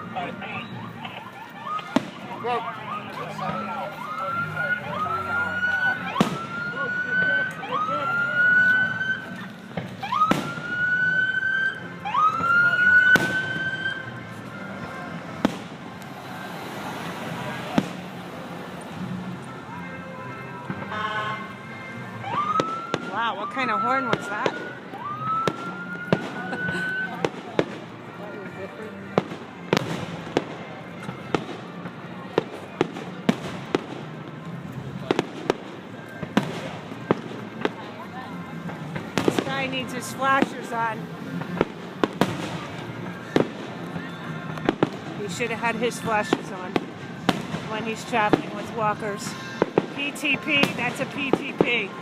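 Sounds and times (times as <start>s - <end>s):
siren whooping: 0.0s - 14.9s, 22.2s - 27.3s
fireworks bangs: 0.2s - 7.6s, 8.4s - 11.6s, 12.2s - 19.1s, 22.3s - 27.9s, 29.1s - 52.0s.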